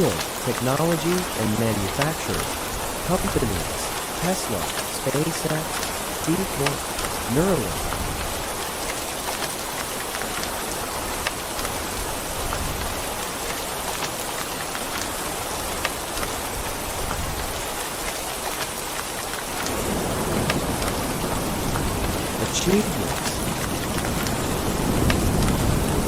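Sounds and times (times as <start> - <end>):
heavy rain falling: 0.0 - 26.0
rain drop ticks: 0.0 - 26.0
thunder rumble: 19.6 - 26.0.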